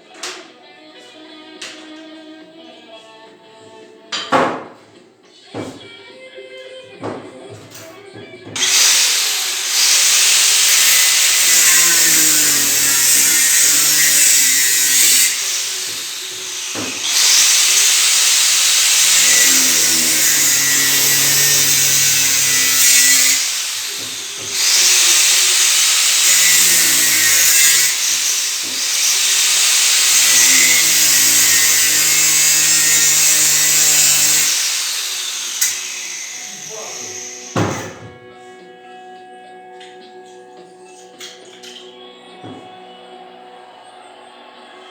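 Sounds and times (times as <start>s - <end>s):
electric power tool running: 8.6s - 38.0s.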